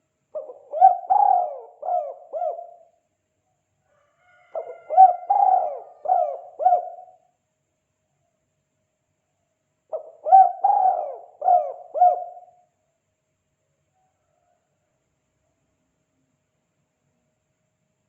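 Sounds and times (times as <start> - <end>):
dove cooing: 0.0 - 3.0, 4.5 - 7.2, 9.9 - 12.6.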